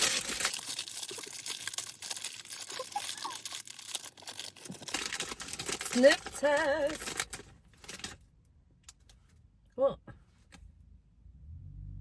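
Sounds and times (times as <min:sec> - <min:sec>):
snack packet tearing and crinkling: 0:00.0 - 0:08.2.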